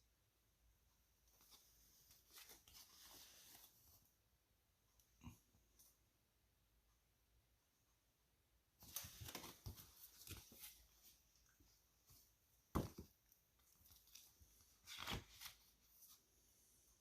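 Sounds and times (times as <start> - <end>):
book pages rustling: 1.3 - 4.1, 8.8 - 16.4.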